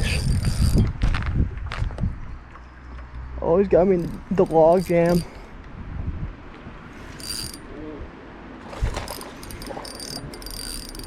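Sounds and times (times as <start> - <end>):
fishing reel drag clicking: 0.0 - 0.8, 4.0 - 5.5, 6.9 - 7.7, 9.0 - 11.0.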